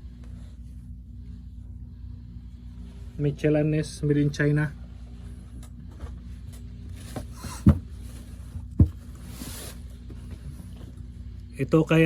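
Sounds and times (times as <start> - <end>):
steady low hum: 0.0 - 12.0
dull thumps: 7.1 - 9.3.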